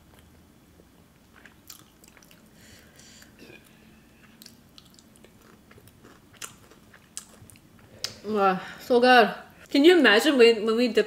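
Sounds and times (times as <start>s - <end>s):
person chewing: 1.2s - 8.2s.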